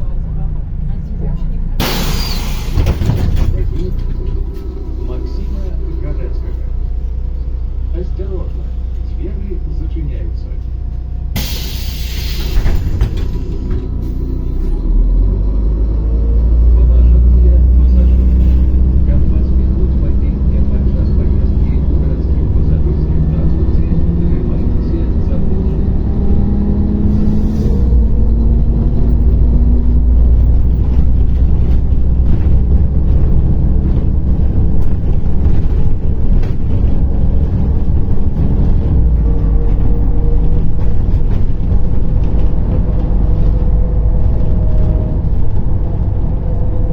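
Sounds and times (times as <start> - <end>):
bus engine rumble: 0.0 - 46.9
clunks: 1.6 - 6.7, 10.6 - 14.8, 27.5 - 46.7.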